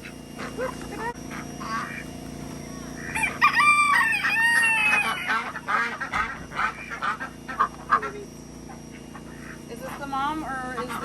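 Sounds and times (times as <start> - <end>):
chickens clucking: 0.0 - 11.0
rooster crowing: 3.0 - 5.8.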